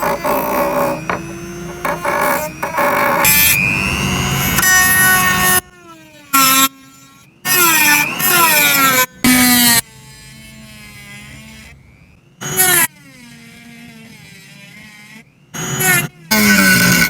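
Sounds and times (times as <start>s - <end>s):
power tool motor whining: 0.0s - 5.9s.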